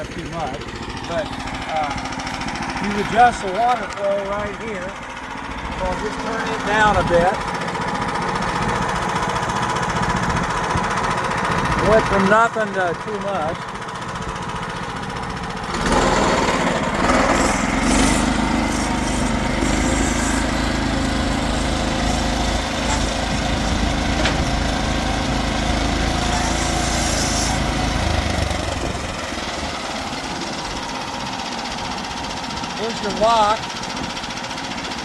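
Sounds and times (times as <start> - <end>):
sawmill gas engine running: 0.0 - 35.0
band saw cutting log: 5.8 - 13.3, 15.6 - 31.9.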